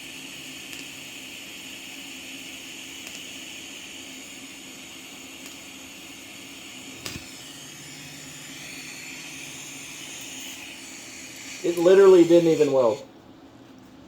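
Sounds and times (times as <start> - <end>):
welder hiss and hum: 0.0 - 13.0
sharp click: 3.0 - 3.3
lower hum: 6.2 - 13.0.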